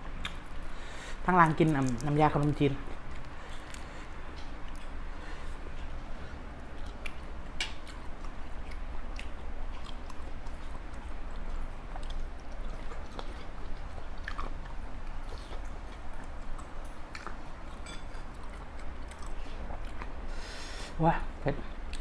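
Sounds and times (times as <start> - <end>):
person chewing wetly: 0.0 - 20.9, 21.7 - 22.0
crisp crunches: 1.4 - 4.1.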